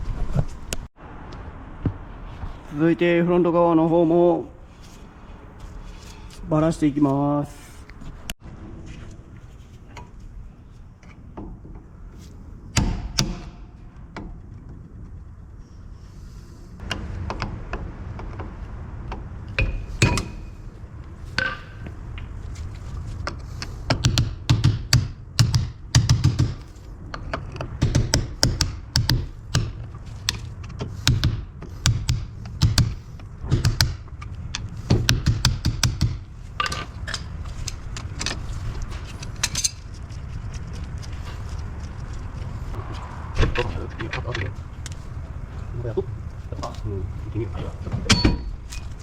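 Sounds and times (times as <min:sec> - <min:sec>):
metal tools clanking on brake parts: 0:19.6 - 0:20.6, 0:36.6 - 0:39.9, 0:47.6 - 0:49.0
low rumble: 0:26.6 - 0:49.0.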